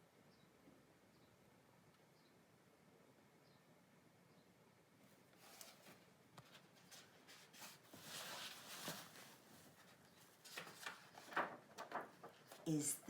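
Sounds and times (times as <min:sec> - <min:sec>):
faint rustling: 0:05.1 - 0:12.7.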